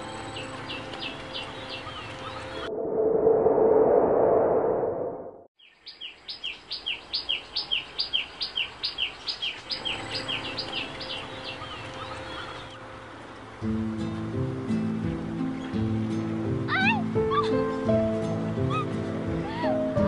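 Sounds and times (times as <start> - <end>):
songbird chirping: 0.0 - 2.7, 5.6 - 14.2.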